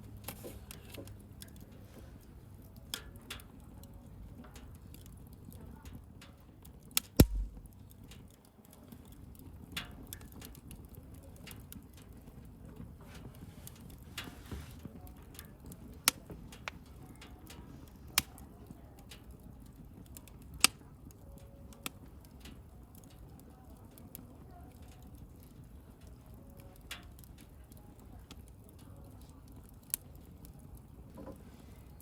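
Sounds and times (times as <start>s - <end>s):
bonfire flame rumble: 0.0s - 32.0s
fire crackling: 0.1s - 32.0s
sharp pops from fire: 6.9s - 8.4s.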